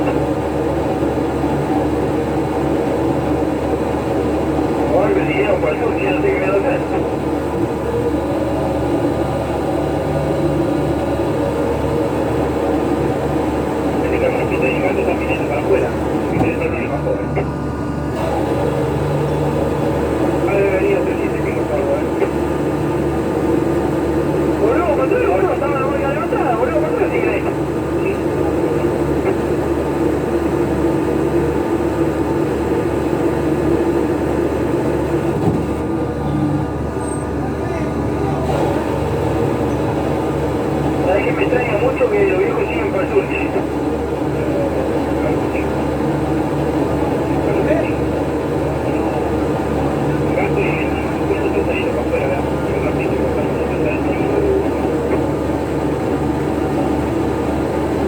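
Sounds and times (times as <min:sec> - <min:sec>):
boat engine and deck machinery drone: 0:00.0 - 0:58.0.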